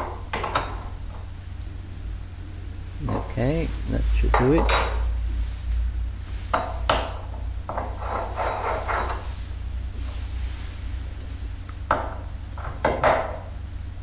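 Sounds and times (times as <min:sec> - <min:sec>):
metal rubbing and scraping: 0:07.3 - 0:11.0.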